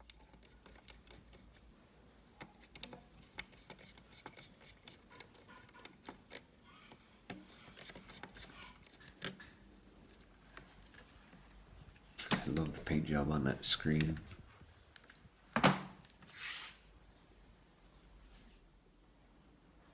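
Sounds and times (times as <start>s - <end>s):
small clicks and taps: 2.4s - 6.5s.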